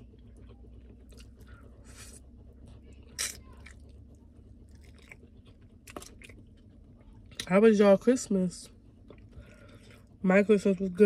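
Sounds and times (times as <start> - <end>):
wet chewing and biting: 0.0 - 7.5
faint low hum: 0.0 - 11.0.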